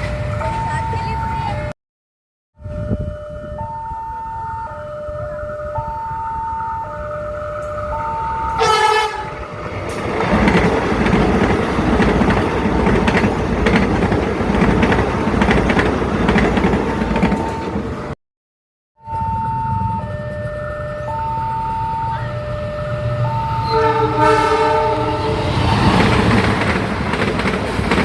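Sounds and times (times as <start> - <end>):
two-tone crossing alarm: 0.0 - 1.7, 2.6 - 9.7, 16.8 - 17.9, 19.0 - 25.5
train horn blast: 8.5 - 9.6, 22.2 - 25.8
train wheels clattering: 9.7 - 17.9, 25.6 - 28.0.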